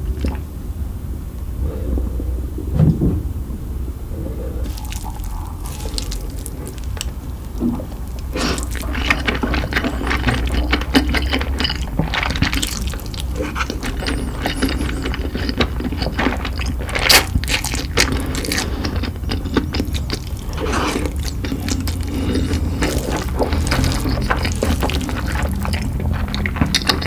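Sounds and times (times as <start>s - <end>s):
wet chewing and crunching: 0.0s - 0.5s, 4.2s - 27.0s
steady low hum: 0.0s - 27.0s.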